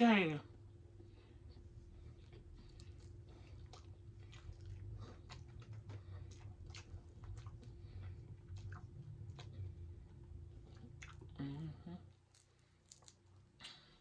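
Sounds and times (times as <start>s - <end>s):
steady low hum: 0.0s - 14.0s
person chewing crunchy fish: 2.1s - 11.4s, 12.2s - 13.9s.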